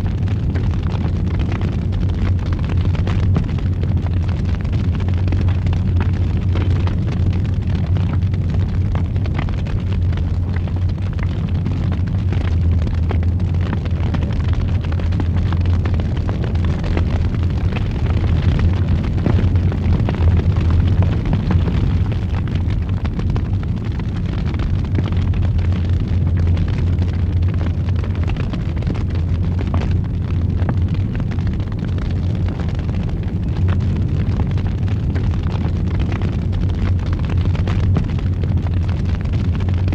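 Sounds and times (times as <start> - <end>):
fire crackling and popping: 0.0 - 39.9
wood fire roaring: 0.0 - 39.9.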